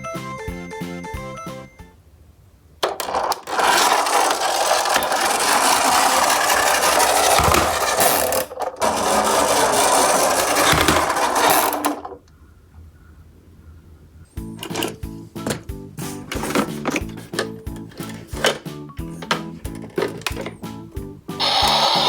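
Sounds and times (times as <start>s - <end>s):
toy trucks rattling down ramp: 2.8s - 12.2s, 14.6s - 20.6s, 21.4s - 22.0s.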